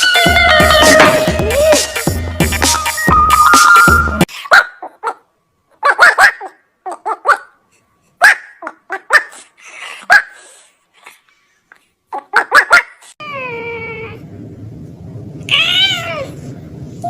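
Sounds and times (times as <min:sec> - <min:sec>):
dog barking: 0:04.5 - 0:05.2, 0:05.8 - 0:07.6, 0:08.2 - 0:10.4, 0:12.3 - 0:13.0.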